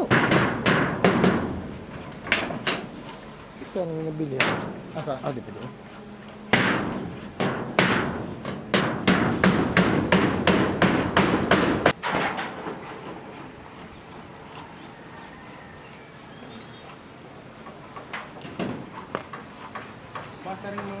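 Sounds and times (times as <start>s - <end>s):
hammer blows: 0.0s - 12.8s.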